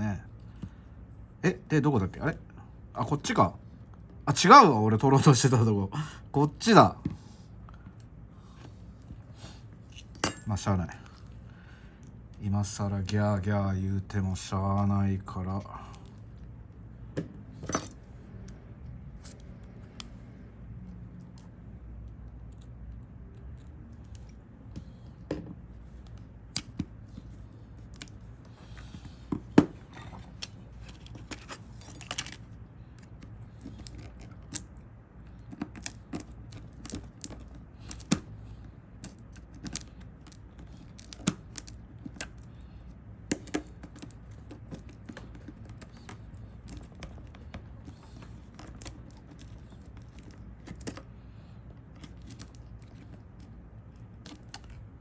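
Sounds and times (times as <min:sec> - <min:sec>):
steady low hum: 0:00.0 - 0:55.0
hand tools clicking on phone: 0:33.0 - 0:51.1.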